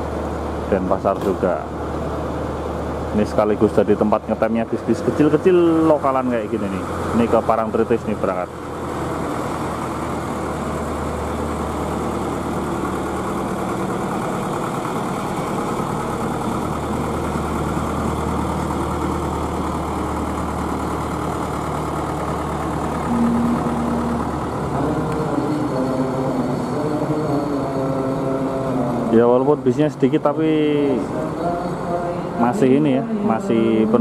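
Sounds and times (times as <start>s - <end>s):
bus engine idling: 0.0s - 34.0s
pitched tones: 10.0s - 34.0s.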